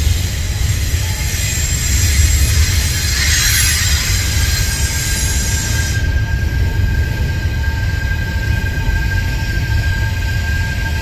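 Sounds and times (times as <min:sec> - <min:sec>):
hiss: 0:00.0 - 0:06.2
high-pitched whine: 0:00.0 - 0:11.0
train wheels rumbling on rail: 0:00.0 - 0:11.0.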